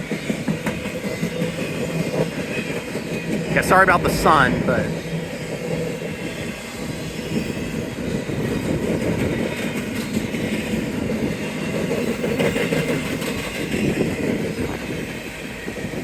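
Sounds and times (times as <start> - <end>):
freight train cars rolling past: 0.0 - 16.0
steel wheels clattering on rail: 0.0 - 16.0.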